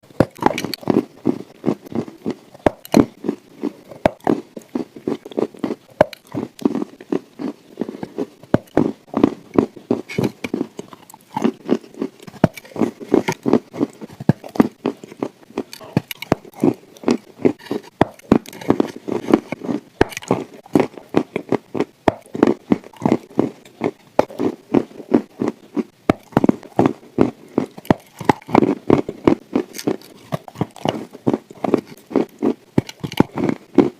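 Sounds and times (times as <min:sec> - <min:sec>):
chalk crunching being chewed: 0:00.2 - 0:33.9.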